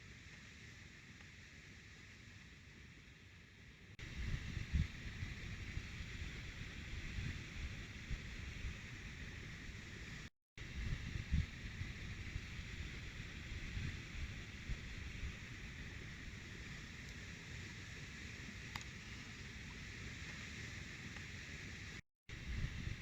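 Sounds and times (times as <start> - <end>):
steady outdoor hiss: 0.0 - 23.0
wind buffeting microphone: 4.0 - 9.0, 10.6 - 16.4, 22.3 - 23.0.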